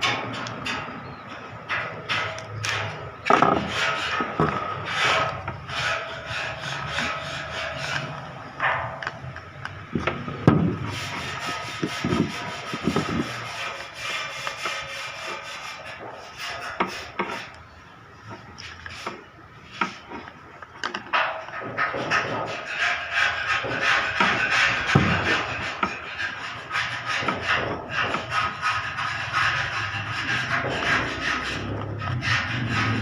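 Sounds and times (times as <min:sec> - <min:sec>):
carbon brush sanded by hand: 0:10.2 - 0:17.6, 0:21.8 - 0:33.0.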